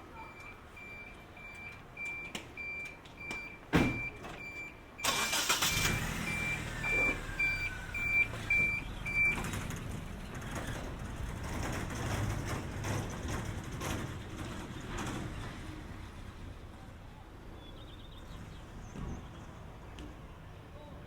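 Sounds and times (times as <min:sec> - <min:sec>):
reversing alarm beeping: 0:00.2 - 0:09.4
vehicle engine noise: 0:05.0 - 0:17.1.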